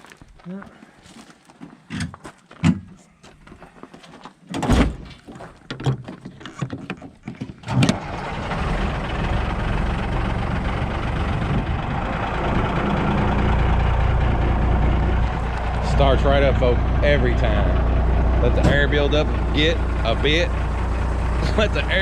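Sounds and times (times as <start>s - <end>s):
knocks and clunks: 4.5s - 9.6s, 17.6s - 22.0s
truck engine starting and idling: 7.6s - 22.0s.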